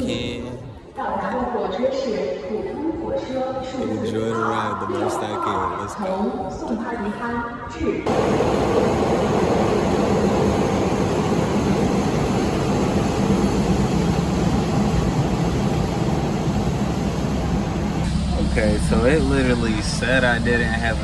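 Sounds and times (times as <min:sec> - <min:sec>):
train rumbling and rushing: 0:08.0 - 0:21.0.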